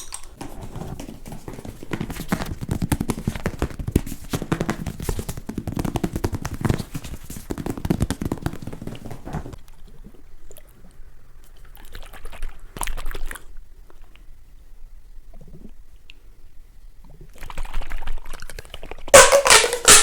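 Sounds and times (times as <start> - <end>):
fast clicking and tapping: 0.0 - 9.6.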